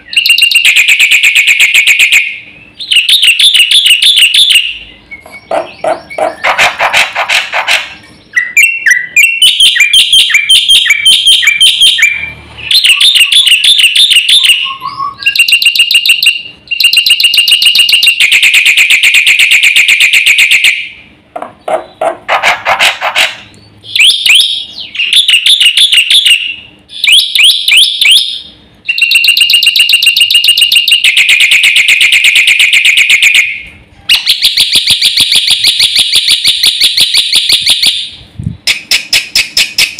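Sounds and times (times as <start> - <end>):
bird singing: 0.0 - 34.5.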